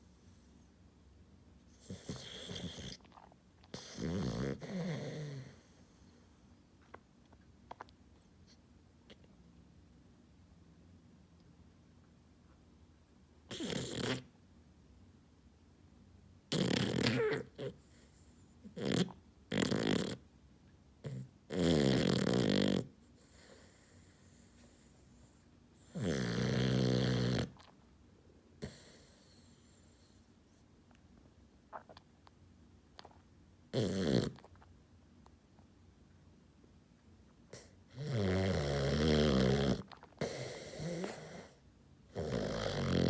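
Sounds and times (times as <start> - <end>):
puppy snoring: 1.7 - 7.0, 13.4 - 14.3, 16.5 - 20.3, 21.0 - 27.8, 28.6 - 30.3, 33.0 - 34.7, 37.5 - 43.0.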